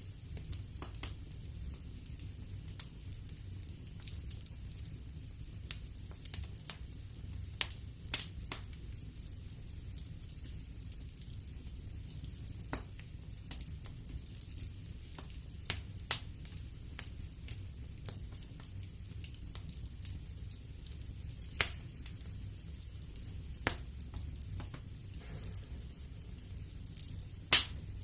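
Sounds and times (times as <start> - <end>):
low rumble of flames: 0.0 - 28.0
logs crackling and popping: 10.6 - 28.0.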